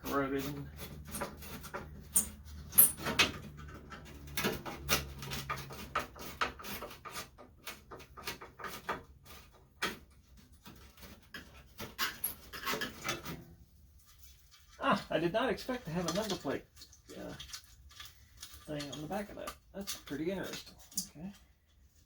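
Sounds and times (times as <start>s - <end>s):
hand tools clicking and knocking: 0.0s - 13.5s.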